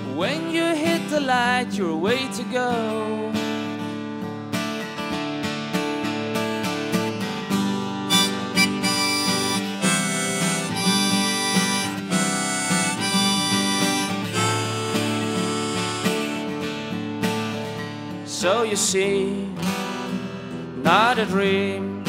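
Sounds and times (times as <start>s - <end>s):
strummed acoustic guitar: 0.0s - 22.0s
harmonica melody: 8.0s - 17.0s.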